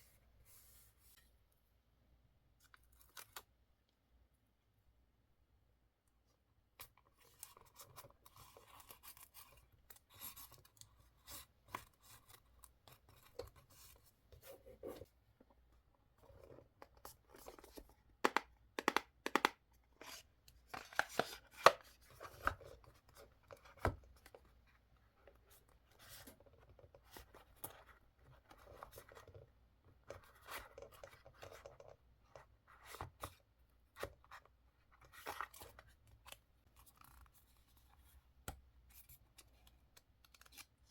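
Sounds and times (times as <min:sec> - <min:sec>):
clicks and taps on desk: 0:18.2 - 0:19.6.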